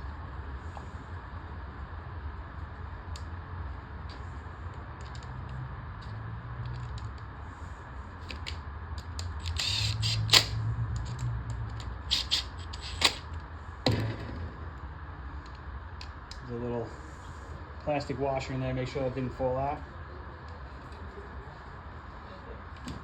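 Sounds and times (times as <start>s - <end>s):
steady low hum: 0.0s - 23.0s
small parts clicking and tapping: 5.0s - 7.3s, 8.2s - 13.5s
sharp click: 9.4s - 10.6s.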